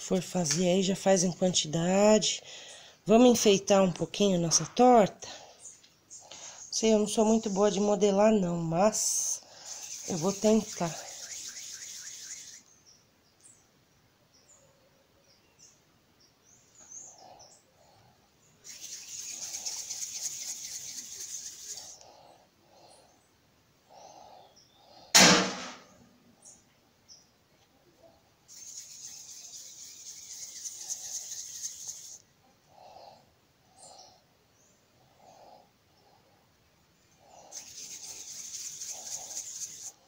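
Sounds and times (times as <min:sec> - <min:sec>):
bird chirping and trilling: 0:09.0 - 0:13.0, 0:18.6 - 0:22.0, 0:28.5 - 0:32.2, 0:37.2 - 0:40.0
sharp knock: 0:25.2 - 0:25.9.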